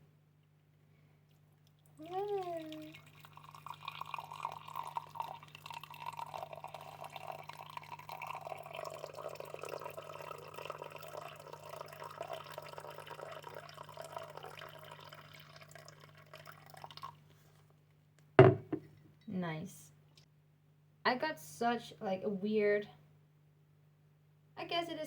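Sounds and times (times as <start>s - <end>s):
faint steady hum: 0.0s - 25.0s
water pouring into a vessel: 2.0s - 17.2s.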